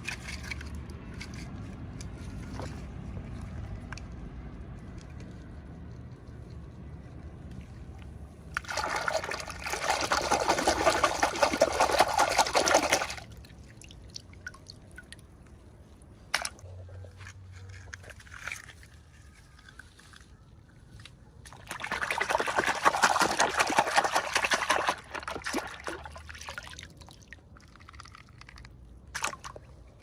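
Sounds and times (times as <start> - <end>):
liquid pouring: 8.6 - 15.1.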